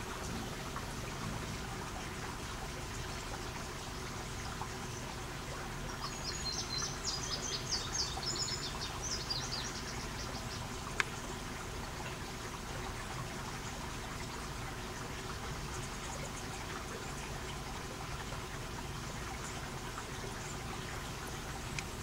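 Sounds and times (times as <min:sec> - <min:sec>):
steady background hiss: 0:00.0 - 0:22.0
bird chirping: 0:05.9 - 0:10.7.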